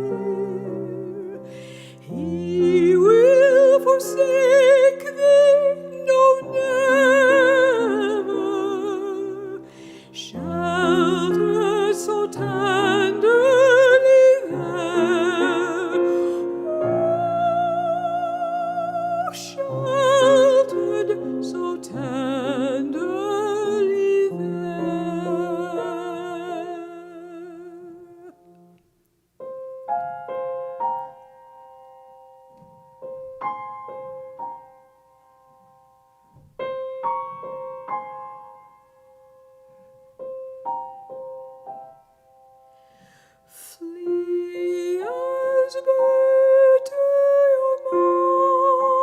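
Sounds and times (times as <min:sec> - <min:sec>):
piano accompaniment: 0:00.0 - 0:28.8, 0:29.4 - 0:49.0
soprano singing: 0:00.0 - 0:28.8, 0:43.5 - 0:49.0.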